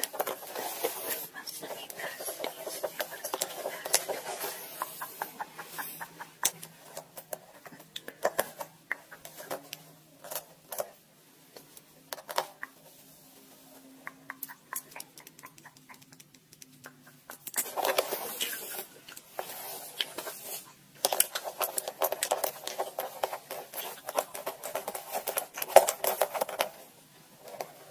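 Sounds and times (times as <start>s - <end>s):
crackly scratching: 0.0s - 27.9s
close-up clicks and taps: 14.0s - 17.6s.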